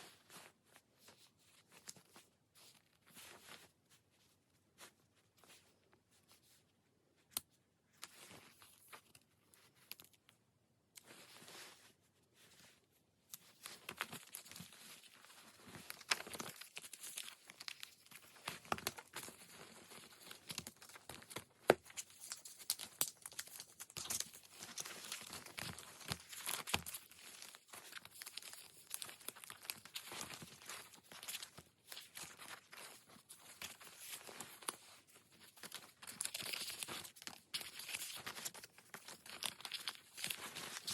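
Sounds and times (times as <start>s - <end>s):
paper sheets rustling and crinkling: 13.4s - 40.9s.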